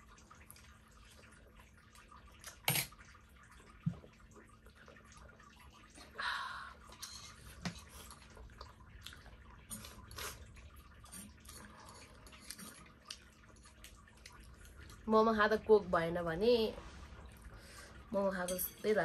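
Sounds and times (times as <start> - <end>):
wet chewing and lip smacks: 11.2 - 15.0.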